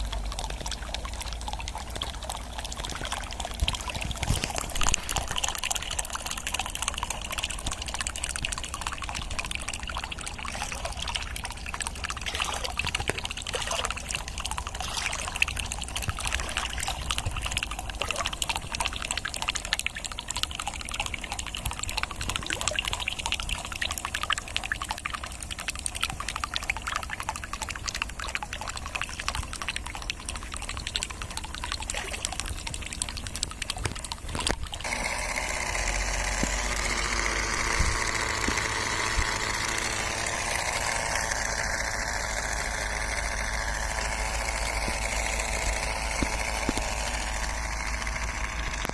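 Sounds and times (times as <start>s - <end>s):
water trickling and splashing: 0.0s - 48.9s.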